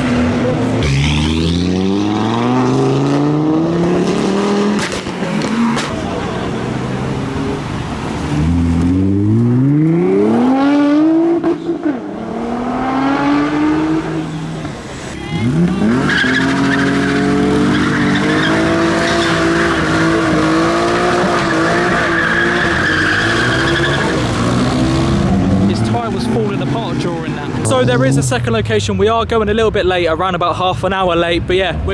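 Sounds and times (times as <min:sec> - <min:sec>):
car engine revving hard: 0:00.0 - 0:14.6, 0:15.3 - 0:28.6
tyres squealing: 0:14.3 - 0:28.4.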